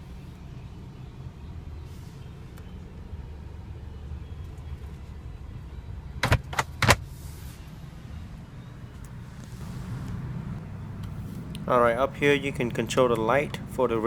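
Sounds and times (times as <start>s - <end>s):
steady low rumble: 7.8s - 14.0s.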